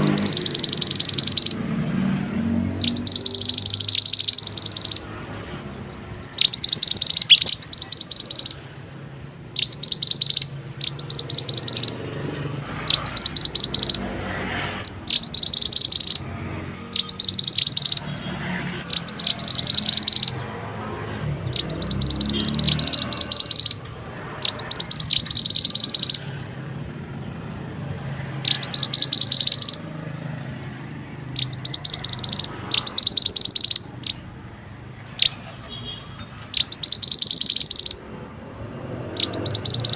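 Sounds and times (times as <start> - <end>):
songbird high-pitched trills: 0.0 - 8.8, 9.5 - 12.2, 12.8 - 14.2, 14.8 - 18.2, 18.8 - 26.5, 28.3 - 34.3, 35.2 - 39.9.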